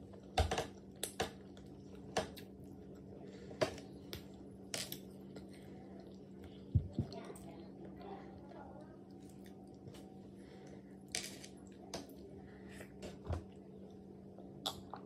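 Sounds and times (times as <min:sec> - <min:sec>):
soft chewing and mouth clicks: 0:00.0 - 0:10.9
steady low hum: 0:00.0 - 0:15.0.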